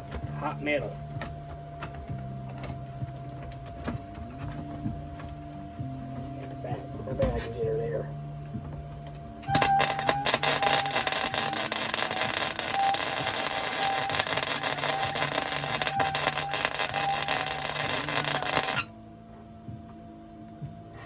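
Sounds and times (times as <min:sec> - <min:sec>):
electric arc welding hiss: 0:09.4 - 0:18.9.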